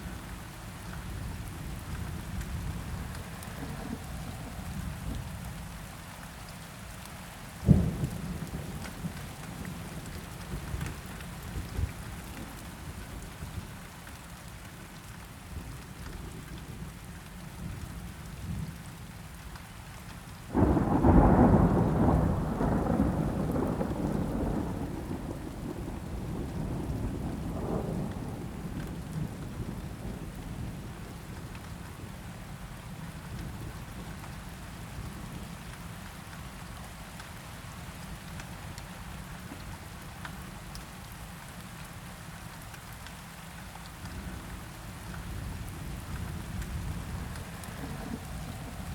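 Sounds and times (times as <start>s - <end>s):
steady rainfall: 0.0s - 48.9s
thunderclap rumbling: 20.5s - 30.8s, 45.4s - 48.9s.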